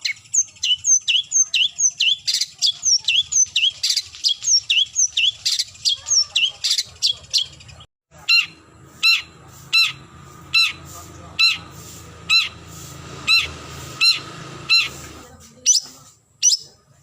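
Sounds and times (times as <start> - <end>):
bird harsh rasping calls: 0.0 - 16.8
bird sharp down-slurred notes: 8.2 - 15.8.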